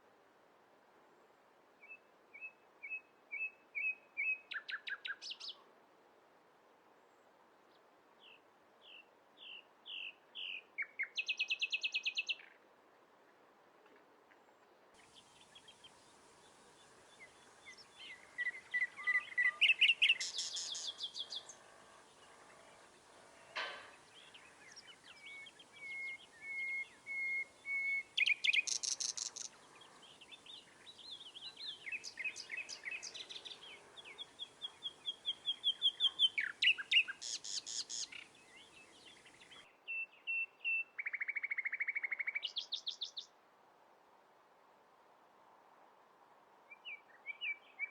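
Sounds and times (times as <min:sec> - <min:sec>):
songbirds singing: 0:01.8 - 0:05.6, 0:07.7 - 0:12.6, 0:15.0 - 0:43.3, 0:46.7 - 0:47.9.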